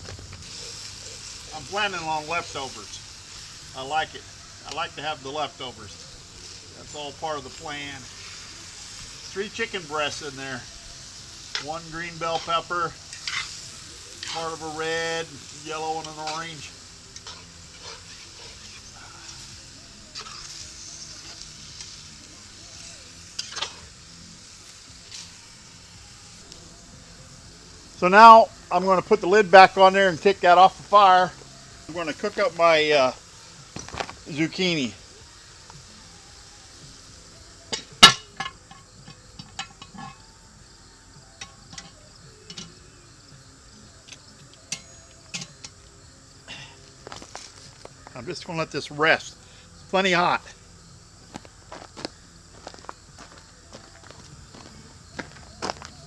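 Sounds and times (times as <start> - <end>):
food sizzling: 0.0 - 56.0
metal cookware clinking: 0.1 - 25.7, 37.6 - 40.3, 41.3 - 42.9, 44.1 - 45.9
spoon stirring in a pot: 11.0 - 25.4
metal lid clanking on pot: 37.7 - 40.3.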